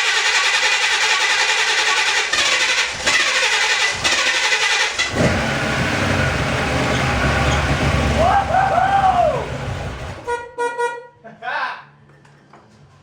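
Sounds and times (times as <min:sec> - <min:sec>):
car engine cranking and starting: 0:00.0 - 0:10.3.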